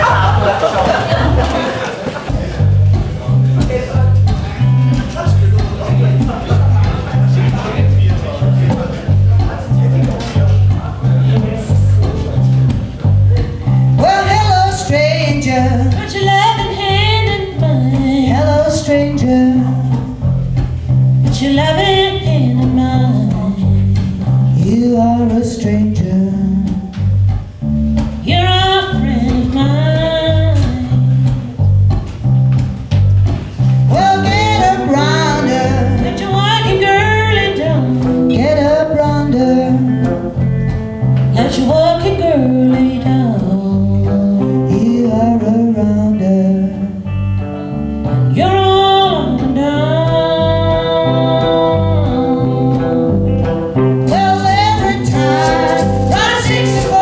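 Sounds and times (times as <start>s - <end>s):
guitar: 0.0s - 57.0s
walking bass line: 0.0s - 57.0s
person singing: 33.9s - 47.1s, 48.0s - 57.0s.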